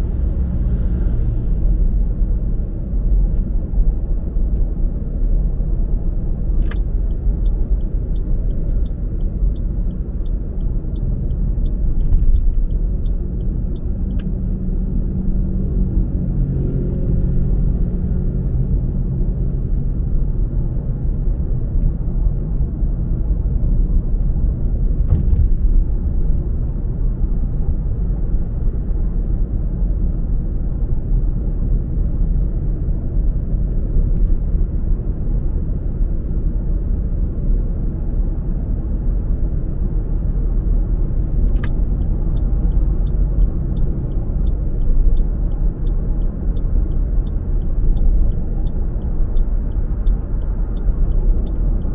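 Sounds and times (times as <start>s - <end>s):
car engine and tyre rumble: 0.0s - 51.9s
turn signal ticking: 6.6s - 14.6s, 41.2s - 51.9s.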